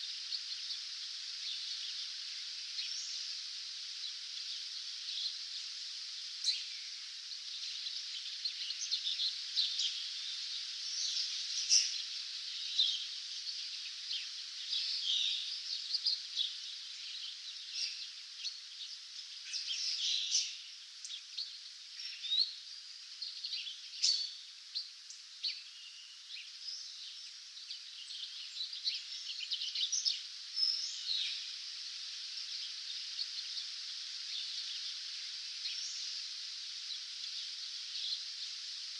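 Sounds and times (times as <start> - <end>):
steady high hiss: 0.0 - 38.9.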